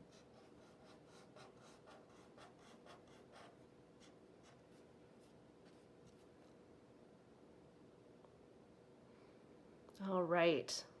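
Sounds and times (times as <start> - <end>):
drawing tool scratching on paper: 0.0 - 6.3.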